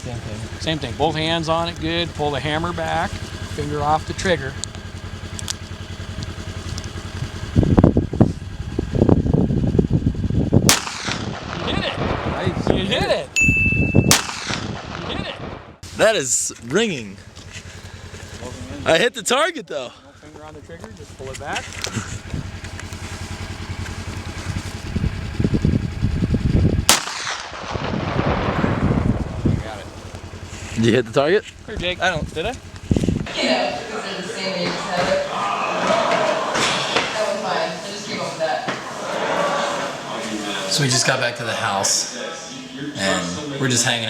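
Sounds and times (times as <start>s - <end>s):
wind buffeting microphone: 6.5s - 15.8s, 21.8s - 33.4s
handgun shot with echo: 10.7s - 11.7s, 14.1s - 15.1s, 26.9s - 27.9s.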